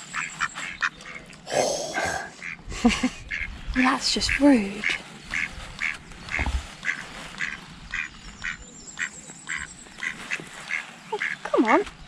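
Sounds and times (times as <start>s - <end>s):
duck quacking: 3.3s - 3.5s, 4.3s - 8.6s, 10.7s - 11.8s
low thump: 6.4s - 6.7s.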